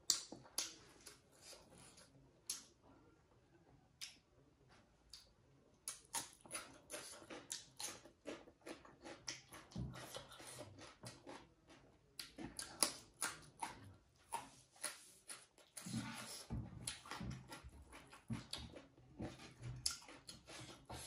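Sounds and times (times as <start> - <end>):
chewing and lip-smacking: 5.1 - 21.0.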